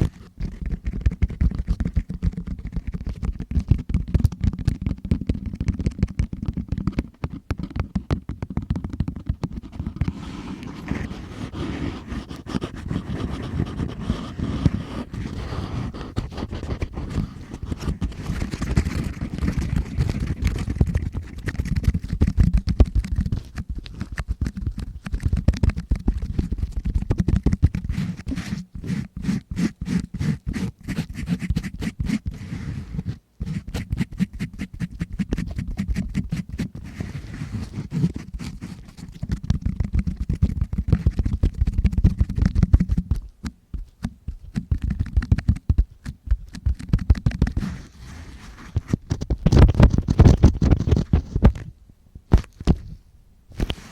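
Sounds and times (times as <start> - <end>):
tool scraping inside microphone ear: 9.5 - 22.1, 27.5 - 39.3, 47.2 - 51.6, 53.6 - 53.9.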